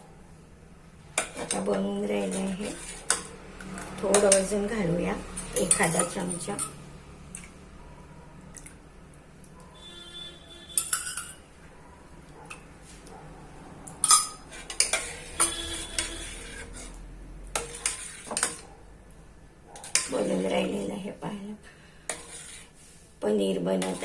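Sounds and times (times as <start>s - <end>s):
spoon scraping in a pot: 1.2s - 7.6s, 9.8s - 11.5s, 13.9s - 18.8s, 19.8s - 21.1s, 21.7s - 23.1s, 23.7s - 24.0s.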